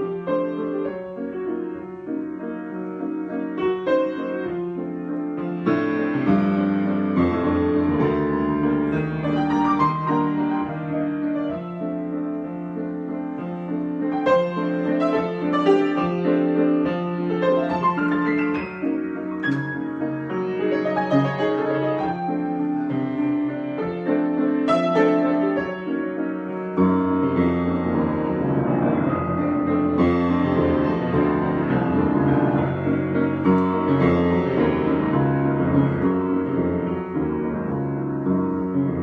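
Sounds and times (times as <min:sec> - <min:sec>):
piano chords: 0:00.0 - 0:39.0.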